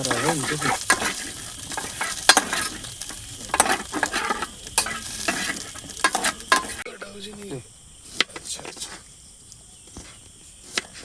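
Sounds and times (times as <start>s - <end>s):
food sizzling in pan: 0.0s - 8.2s
sharp crackling pops: 0.0s - 11.0s.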